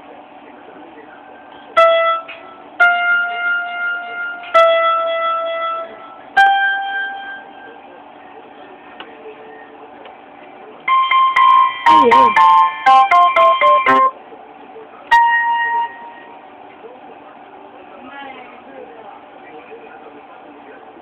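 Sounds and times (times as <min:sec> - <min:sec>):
single keyboard notes: 0:10.9 - 0:14.2.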